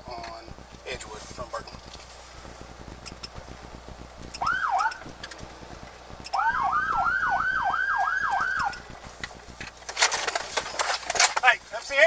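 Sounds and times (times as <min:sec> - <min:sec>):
police siren yelping: 0:04.4 - 0:05.2, 0:06.2 - 0:08.9.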